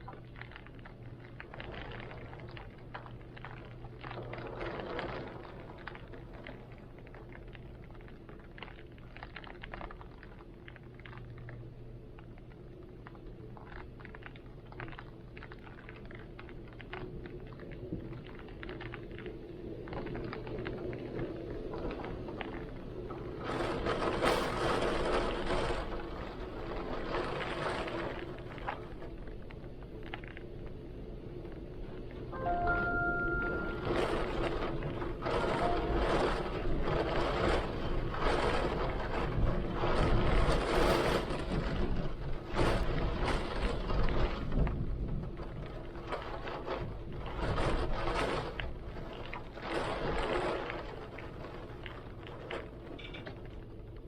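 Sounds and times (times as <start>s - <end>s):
raindrops ticking sharply: 32.3s - 39.2s.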